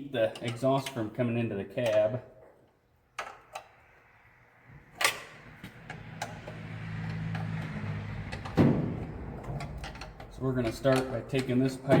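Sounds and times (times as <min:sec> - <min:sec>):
sharp metallic clicks and knocks: 0:05.0 - 0:12.0.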